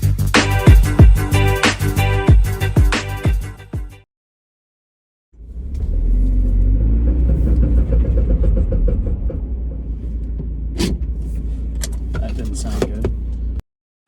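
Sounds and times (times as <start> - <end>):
car engine rumbling: 5.4 - 13.6.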